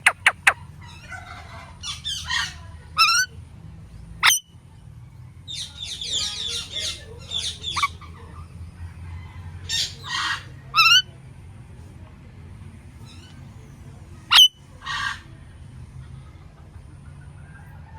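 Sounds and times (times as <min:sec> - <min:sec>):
parakeet shrieking and chattering: 0:00.0 - 0:01.0, 0:01.8 - 0:03.3, 0:09.7 - 0:11.0, 0:14.3 - 0:15.2.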